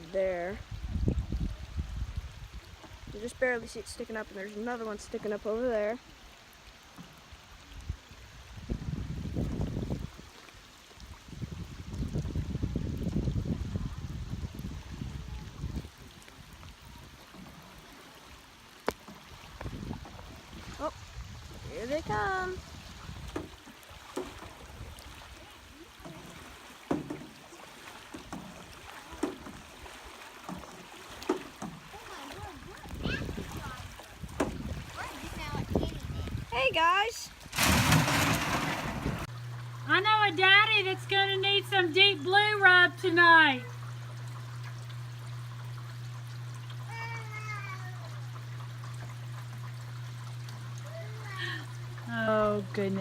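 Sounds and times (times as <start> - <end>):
floodwater rushing: 0.0 - 53.0
soft watery wash: 0.0 - 53.0
paddle strokes splashing water: 14.5 - 36.6, 37.3 - 39.6.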